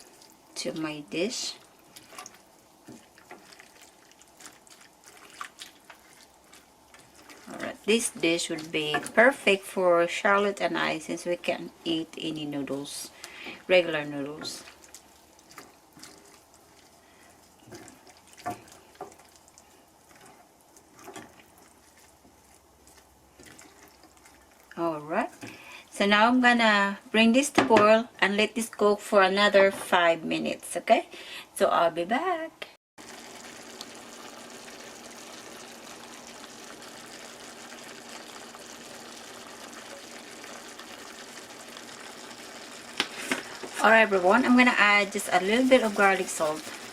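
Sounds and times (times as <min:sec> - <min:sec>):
pot boiling and bubbling: 0:00.0 - 0:26.5, 0:33.0 - 0:46.9
watery hiss from a pan: 0:33.0 - 0:44.6.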